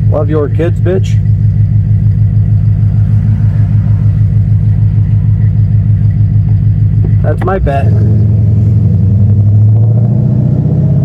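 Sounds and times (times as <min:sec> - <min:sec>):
car engine exhaust drone: 0:00.0 - 0:11.0.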